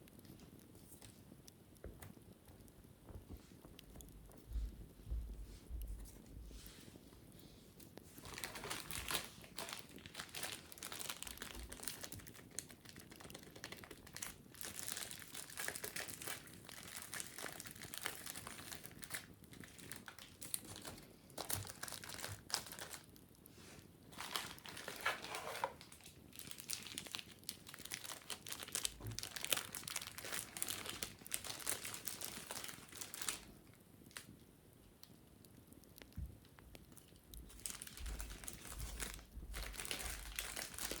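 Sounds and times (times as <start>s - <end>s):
wicker basket scratching: 24.2s - 25.8s.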